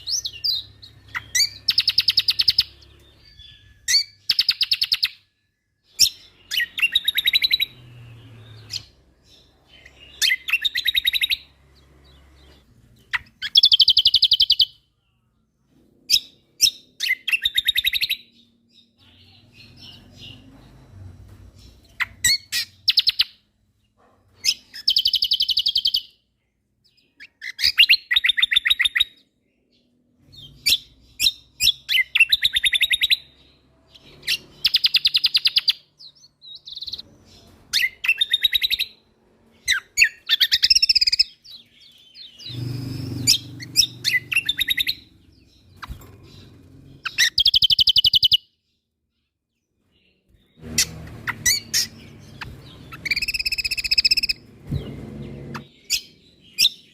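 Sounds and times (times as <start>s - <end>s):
songbird trilling: 42.2s - 45.9s, 50.8s - 54.4s.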